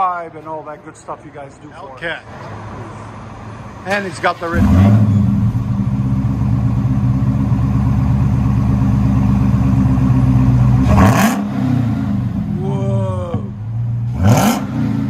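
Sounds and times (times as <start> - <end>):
car engine idling: 2.9 - 14.4
engine revving sharply: 4.2 - 5.9, 10.7 - 12.6, 13.2 - 15.0.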